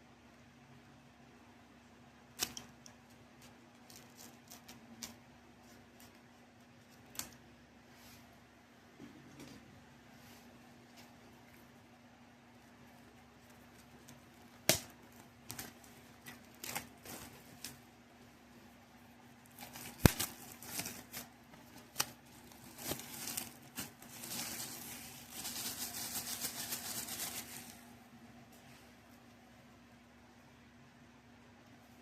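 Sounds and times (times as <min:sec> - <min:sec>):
packaging crinkling rustle: 0:12.7 - 0:17.8, 0:19.3 - 0:27.9.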